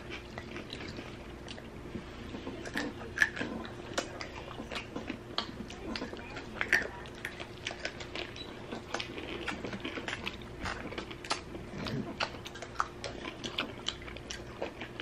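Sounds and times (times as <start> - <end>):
crunchy chewing: 0.0 - 15.0.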